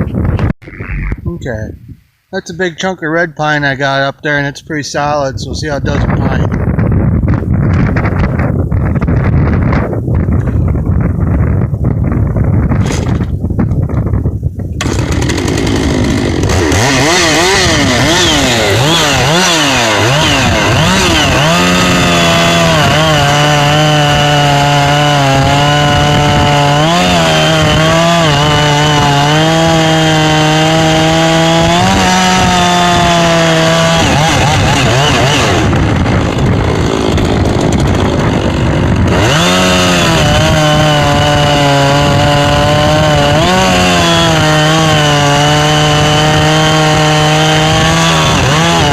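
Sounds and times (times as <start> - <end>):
chainsaw cutting wood: 14.8 - 48.9.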